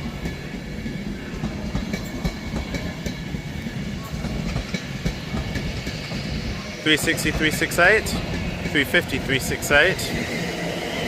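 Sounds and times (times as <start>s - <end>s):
low train rumble: 0.0s - 11.0s
train wheels clicking over rail joints: 0.0s - 11.0s.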